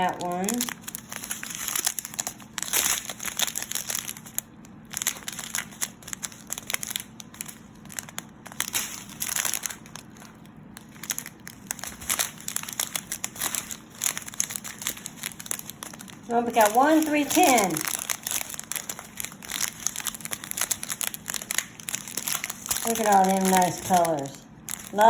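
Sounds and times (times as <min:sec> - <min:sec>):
plastic packets crinkling: 0:00.0 - 0:25.0.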